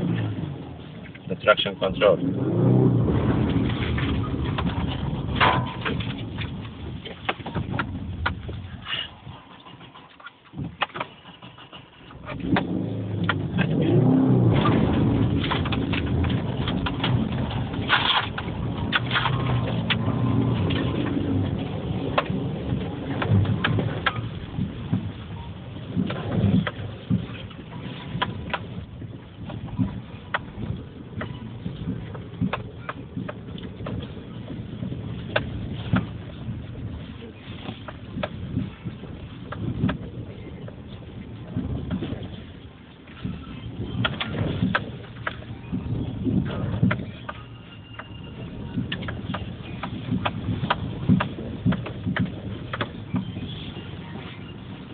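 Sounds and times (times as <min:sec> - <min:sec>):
car engine revving: 0:00.0 - 0:08.2, 0:11.5 - 0:29.1
low engine and road rumble: 0:00.0 - 0:54.9
sharp knocks and rattles: 0:03.1 - 0:36.8, 0:48.8 - 0:53.7
sharp knocks and clicks: 0:03.6 - 0:08.5, 0:48.9 - 0:53.3.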